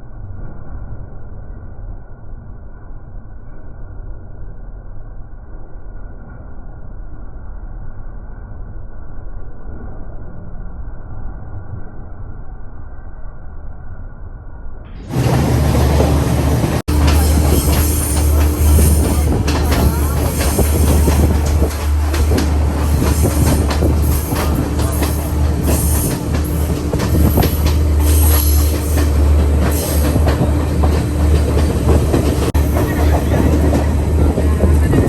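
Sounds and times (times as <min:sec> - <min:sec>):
train rumbling on rails: 0:14.9 - 0:35.0
rail clacks: 0:15.0 - 0:35.0.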